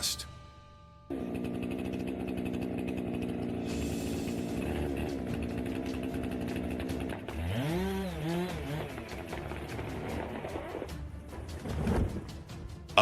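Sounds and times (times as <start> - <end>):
chainsaw engine running: 1.1 - 10.9.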